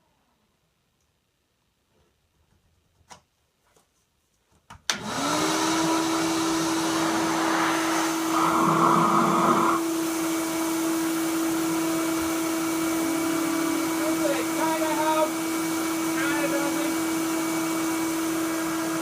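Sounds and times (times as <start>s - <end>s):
shop vacuum motor whine: 4.9s - 19.0s.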